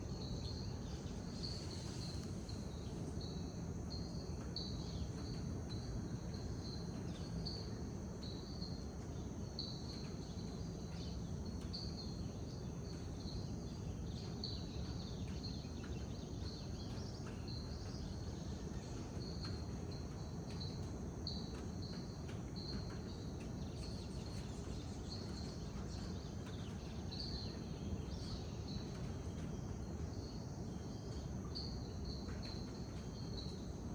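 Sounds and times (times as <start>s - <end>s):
insects calling: 0.0s - 10.4s.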